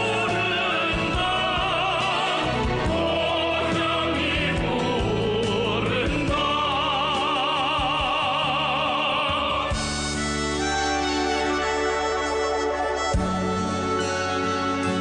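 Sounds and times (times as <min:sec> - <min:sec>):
person singing operatically: 0:00.0 - 0:09.9
instrumental backing: 0:00.0 - 0:15.0.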